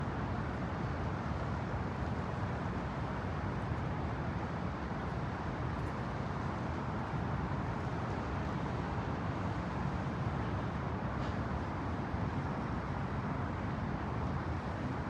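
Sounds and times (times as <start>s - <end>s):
low rumble of city traffic: 0.0s - 15.0s.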